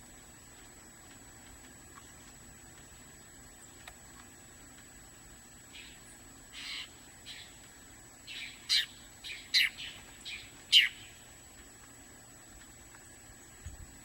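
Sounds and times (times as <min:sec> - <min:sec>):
songbird call notes: 0:00.0 - 0:13.9.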